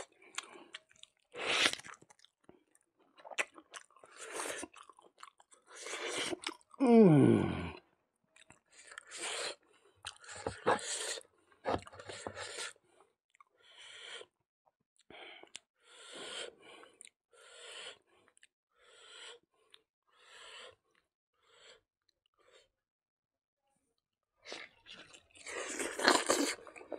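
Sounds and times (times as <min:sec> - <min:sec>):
wet chewing: 0:00.0 - 0:06.8, 0:24.5 - 0:26.9
breathing: 0:12.0 - 0:14.4, 0:15.1 - 0:22.7.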